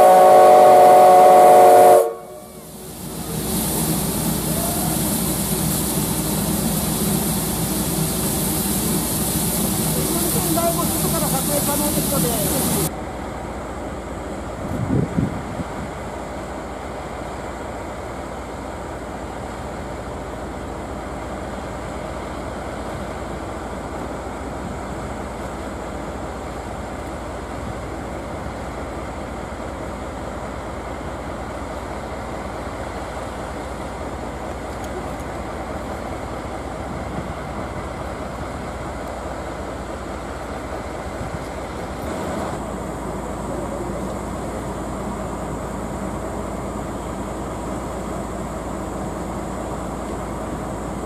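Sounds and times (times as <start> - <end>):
hum and hiss of standing trains: 0.0 - 51.0.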